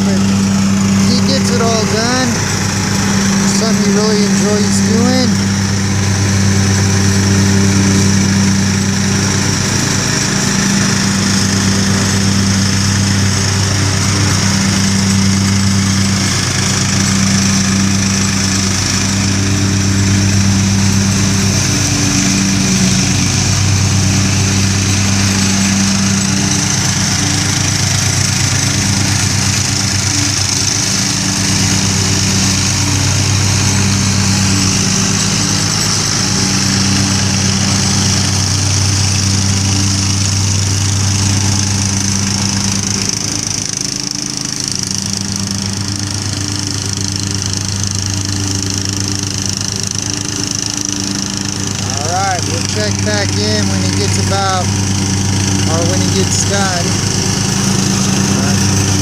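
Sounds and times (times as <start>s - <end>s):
riding lawn mower engine running: 0.0s - 59.0s.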